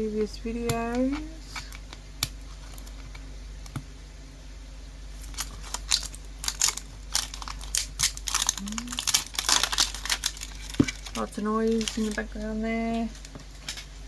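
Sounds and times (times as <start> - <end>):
fan humming: 0.0 - 14.0
plastic packaging crinkling: 5.1 - 13.9.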